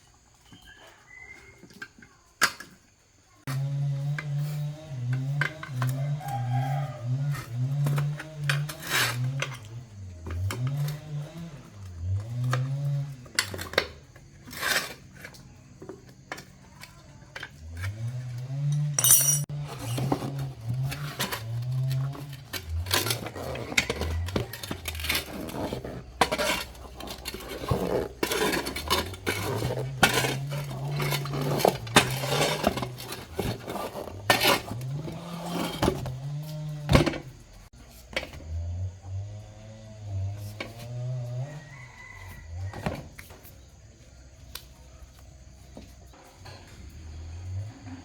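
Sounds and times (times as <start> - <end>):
metal clinking and knocking: 18.7 - 19.5.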